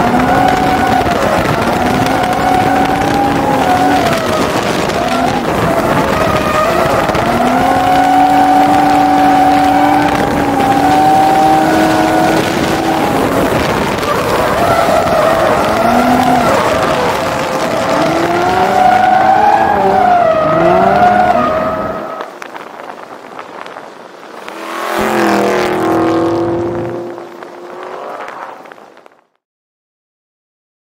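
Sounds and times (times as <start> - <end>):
tyres squealing: 0.0 - 22.3
car engine revving: 0.0 - 22.4, 24.2 - 28.9.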